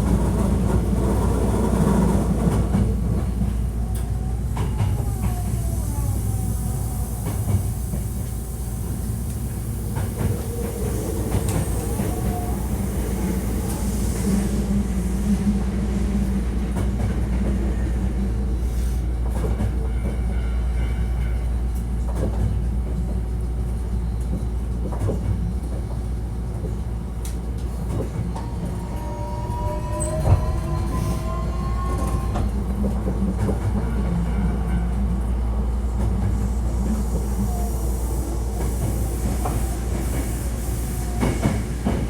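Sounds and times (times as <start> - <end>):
wheels rumbling on rail: 0.0 - 42.0
rail clacks: 24.2 - 42.0.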